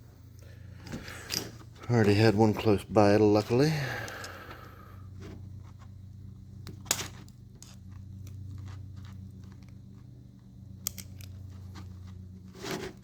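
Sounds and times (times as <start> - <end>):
steady low hum: 0.0 - 13.0
sharp metal clicks: 10.8 - 11.5.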